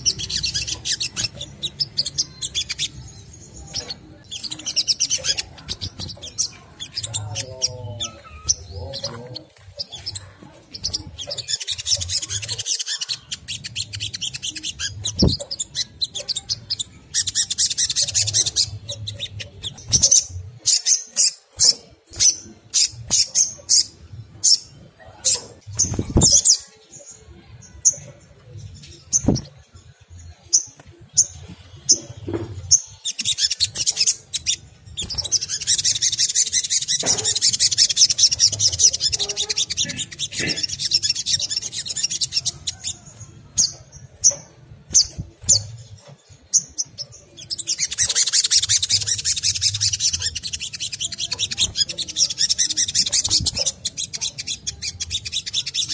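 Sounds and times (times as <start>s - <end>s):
bird chattering trills: 0.0s - 28.1s, 30.5s - 55.9s
bird chirping high chips: 0.0s - 28.2s.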